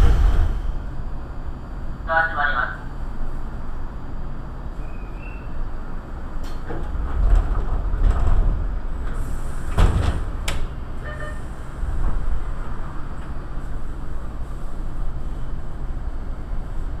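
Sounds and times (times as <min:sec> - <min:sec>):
heavy thump: 0:00.0 - 0:01.2
train low rumble: 0:00.0 - 0:17.0.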